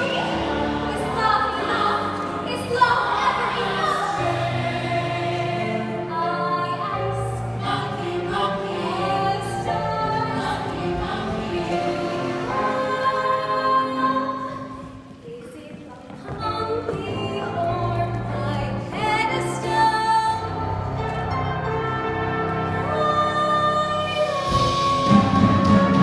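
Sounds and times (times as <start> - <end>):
chorus singing: 0.0 - 14.8
instrumental accompaniment: 16.3 - 26.0.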